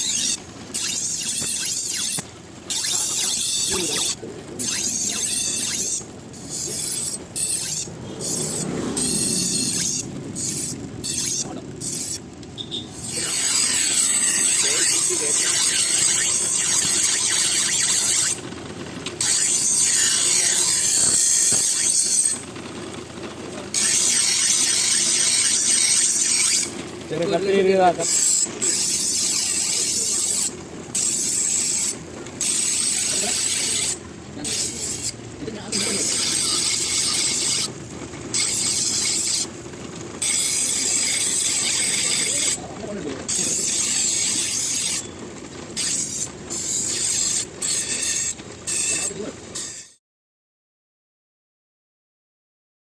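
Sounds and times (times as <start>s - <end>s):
knife scraping on sharpener: 0.0s - 12.2s, 12.9s - 18.4s, 19.2s - 22.4s, 23.8s - 26.7s, 28.0s - 37.7s, 38.4s - 39.5s, 40.2s - 42.6s, 43.3s - 45.1s, 45.8s - 50.0s.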